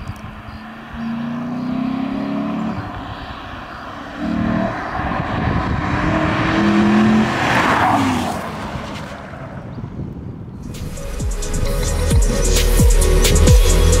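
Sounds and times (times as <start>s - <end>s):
car engine accelerating: 0.0s - 9.8s
tyre and wind rush: 2.1s - 10.9s.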